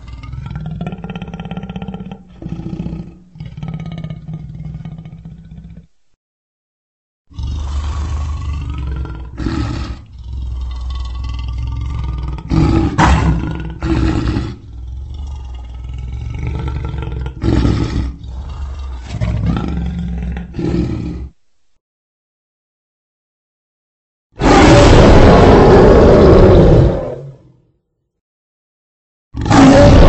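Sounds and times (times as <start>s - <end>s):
lion roaring: 0.0s - 5.9s, 7.3s - 21.4s, 24.4s - 27.6s, 29.4s - 30.0s.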